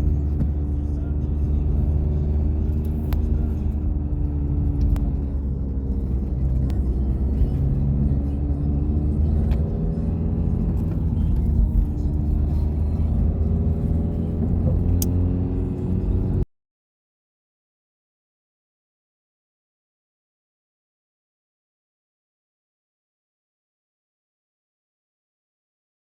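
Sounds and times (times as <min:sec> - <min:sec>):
car engine rumble: 0:00.0 - 0:16.5.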